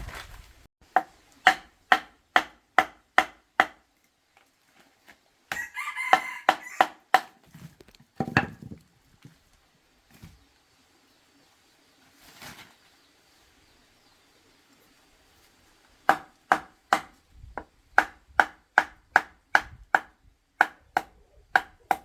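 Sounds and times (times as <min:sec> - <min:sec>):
rooster crowing: 0:05.5 - 0:07.0.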